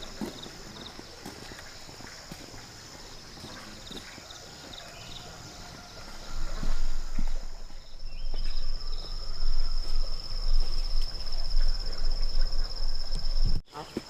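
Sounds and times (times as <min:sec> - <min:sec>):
insect trilling: 0:03.0 - 0:14.0.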